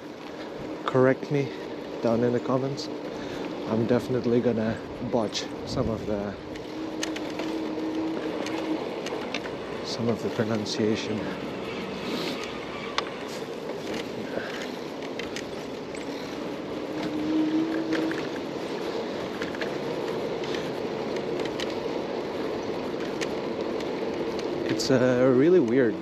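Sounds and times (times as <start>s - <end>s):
street noise: 0.0s - 26.0s
small clicks: 6.5s - 9.6s, 12.4s - 25.0s.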